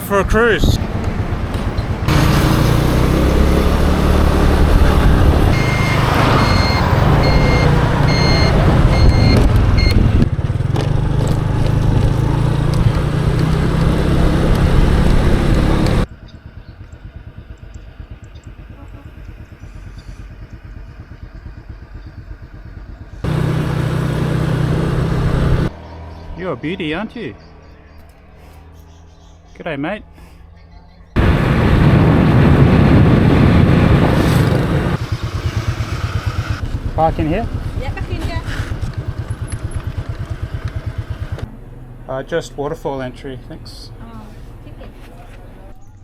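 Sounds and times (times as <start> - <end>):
road noise: 0.0 - 46.0
motor scooter engine: 0.8 - 26.7, 31.1 - 43.0
vehicle electronic beeping: 4.3 - 10.2.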